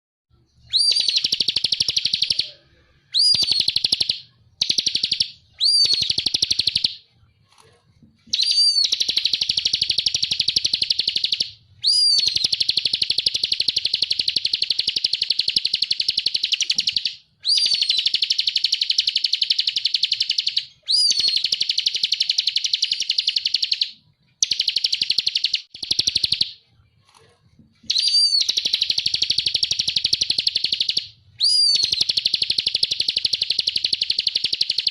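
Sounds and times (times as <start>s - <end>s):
bird buzzy rattling trill: 8.3s - 26.5s, 27.9s - 34.9s.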